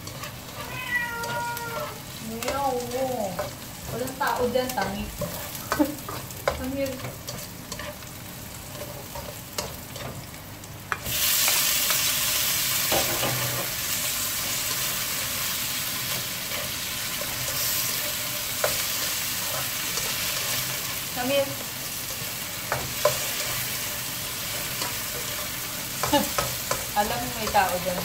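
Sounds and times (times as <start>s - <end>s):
spatula scraping and clicking on pan: 0.0s - 10.3s, 22.6s - 28.0s
food sizzling in oil: 0.0s - 28.0s.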